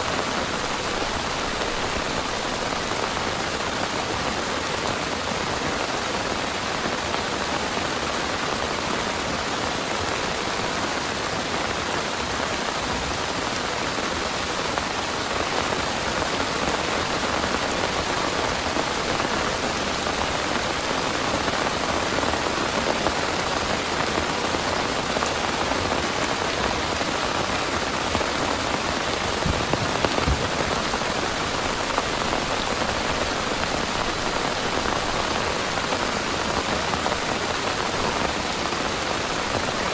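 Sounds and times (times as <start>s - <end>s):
heavy rain pouring: 0.0s - 39.9s
loud thuds: 29.4s - 31.2s.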